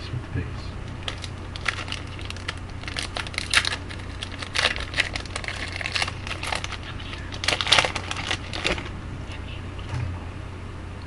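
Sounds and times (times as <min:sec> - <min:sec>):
wrapper crinkling: 0:00.9 - 0:08.9.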